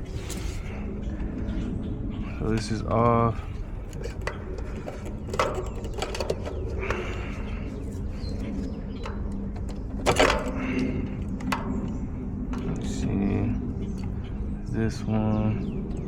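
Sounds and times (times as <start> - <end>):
steady low hum: 0.0 - 16.0
clicks and clatter of tools: 3.8 - 7.3, 8.4 - 12.7.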